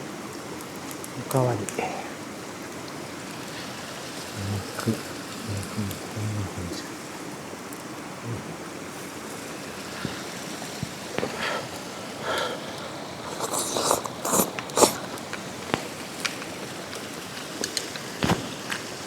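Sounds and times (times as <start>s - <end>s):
steady hiss: 0.0s - 19.0s
person chewing and slurping: 9.9s - 16.2s.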